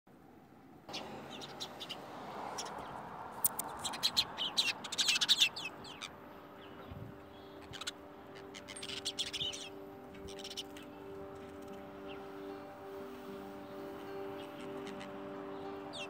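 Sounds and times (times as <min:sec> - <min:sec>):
small birds chirping: 0:00.9 - 0:16.0
steady low tones: 0:05.8 - 0:15.9.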